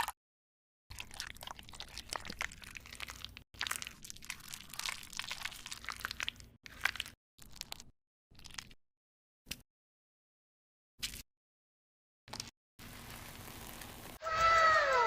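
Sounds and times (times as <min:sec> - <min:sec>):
food crunching and crackling: 0:00.9 - 0:08.8, 0:12.3 - 0:14.2.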